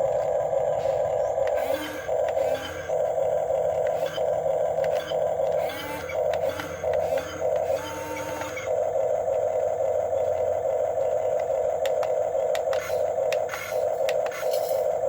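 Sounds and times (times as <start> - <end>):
electric motors whining: 0.0 - 15.0
sharp clicks: 11.4 - 14.5.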